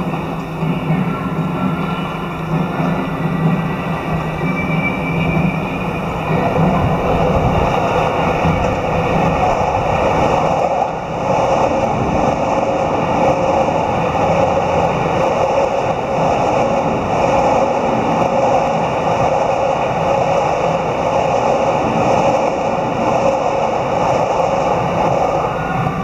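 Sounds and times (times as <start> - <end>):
train wheels on rails: 0.0 - 26.0.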